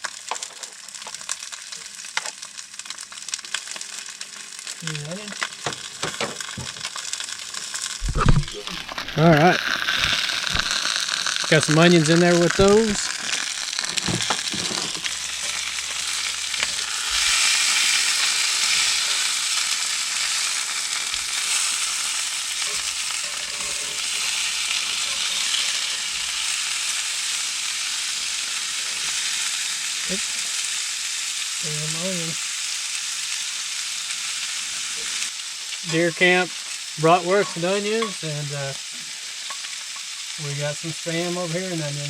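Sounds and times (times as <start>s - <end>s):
sausages and onions sizzling: 0.0s - 42.0s.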